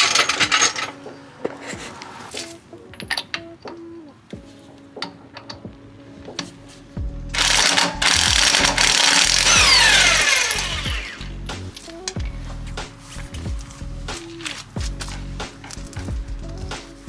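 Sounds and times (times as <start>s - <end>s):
impact wrench whining: 0.0s - 3.5s, 6.3s - 12.6s
tools clicking: 7.4s - 12.2s.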